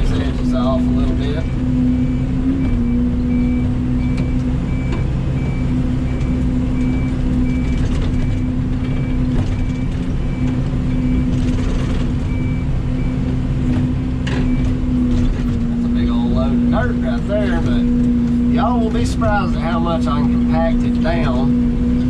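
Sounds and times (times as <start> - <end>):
excavator engine droning: 0.0 - 22.0
high beeping alarm: 1.4 - 13.3.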